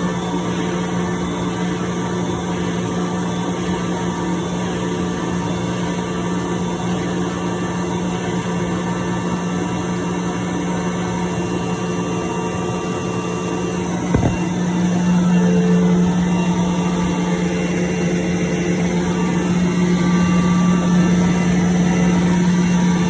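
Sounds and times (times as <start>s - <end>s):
air compressor humming: 11.9s - 23.0s.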